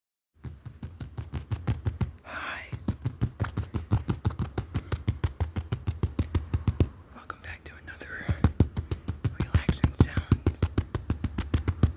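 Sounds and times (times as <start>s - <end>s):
rapid tapping: 0.4s - 7.0s, 7.8s - 11.9s
short breathy hiss: 2.2s - 2.8s.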